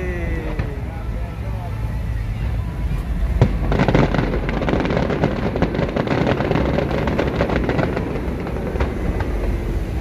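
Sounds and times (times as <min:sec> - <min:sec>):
fireworks crackling: 0:00.0 - 0:10.0
firework bang: 0:03.4 - 0:10.0.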